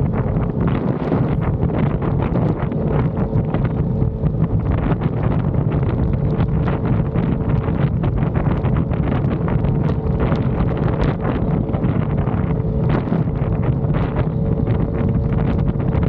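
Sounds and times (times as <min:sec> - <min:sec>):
motorcycle engine cruising: 0:00.0 - 0:16.0
wind buffeting microphone: 0:00.0 - 0:16.0.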